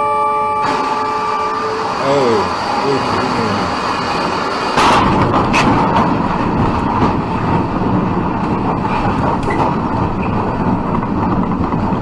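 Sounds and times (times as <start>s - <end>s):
train cars passing: 0.0s - 12.0s.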